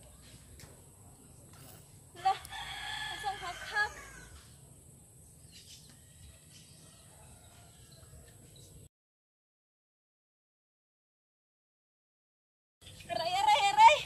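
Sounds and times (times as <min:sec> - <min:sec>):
faint outdoor background: 0:00.0 - 0:08.9, 0:12.8 - 0:14.0
rooster crowing: 0:02.2 - 0:04.5, 0:06.8 - 0:08.4.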